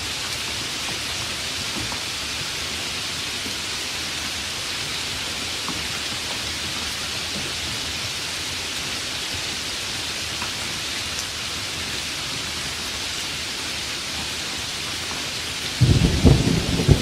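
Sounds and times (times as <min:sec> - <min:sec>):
steady rainfall hiss: 0:00.0 - 0:17.0
raindrops ticking: 0:13.6 - 0:17.0.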